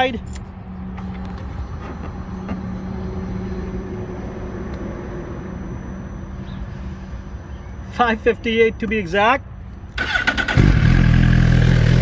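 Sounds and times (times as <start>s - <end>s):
motorcycle engine idling: 10.0s - 12.0s.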